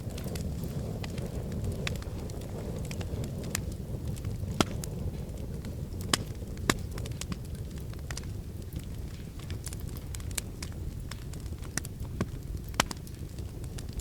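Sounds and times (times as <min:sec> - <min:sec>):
low rumble: 0:00.0 - 0:10.2
wood fire crackling and popping: 0:00.0 - 0:14.0.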